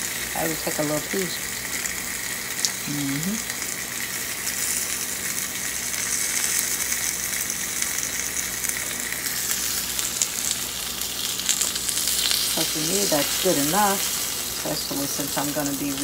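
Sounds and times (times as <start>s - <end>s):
fish sizzling in a pan: 0.0s - 16.0s.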